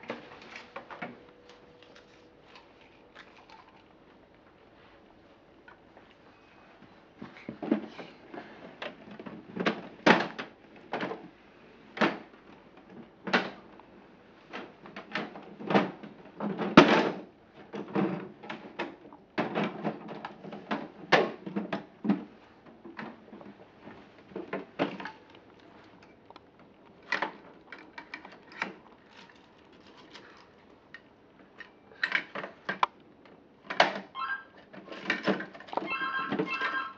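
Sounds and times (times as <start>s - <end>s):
plastic toys clattering: 27.0s - 31.0s, 34.7s - 36.9s.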